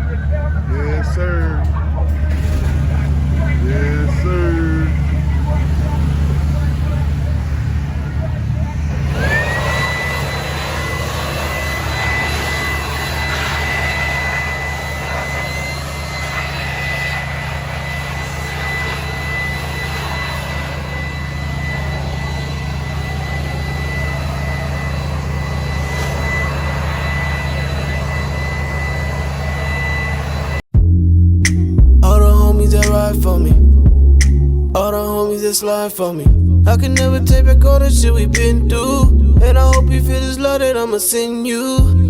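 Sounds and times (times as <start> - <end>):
electric air blower whining: 0.0 - 30.6.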